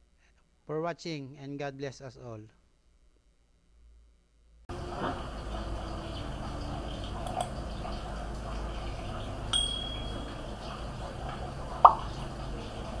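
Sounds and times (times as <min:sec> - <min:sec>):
steady low hum: 0:03.8 - 0:13.0
sharp metallic taps: 0:09.6 - 0:10.3.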